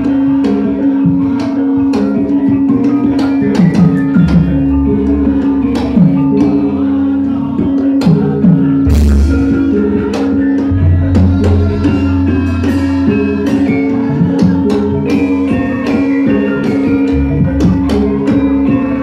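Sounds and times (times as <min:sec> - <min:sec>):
sharp drum strokes: 0:08.2 - 0:19.0
metallophone notes ringing: 0:08.7 - 0:19.0.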